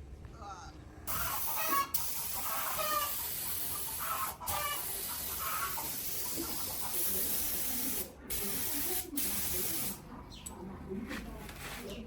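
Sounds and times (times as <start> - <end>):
hens clucking: 1.1 - 6.8
compressed air spray hissing: 1.1 - 10.0.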